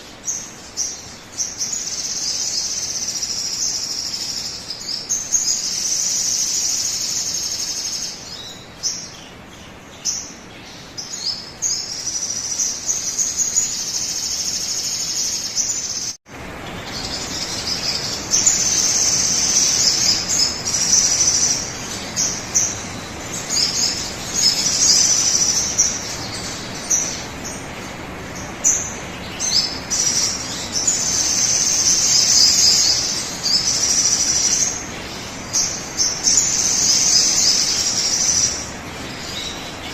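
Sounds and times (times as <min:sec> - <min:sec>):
bird chirps: 0:00.0 - 0:39.9
high bird trill: 0:10.1 - 0:39.9.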